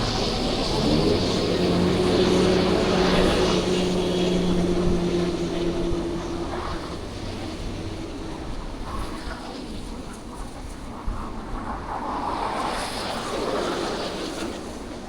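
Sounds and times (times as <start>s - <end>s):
passing vehicle engine hum: 0.0s - 11.3s
traffic noise: 0.0s - 15.0s.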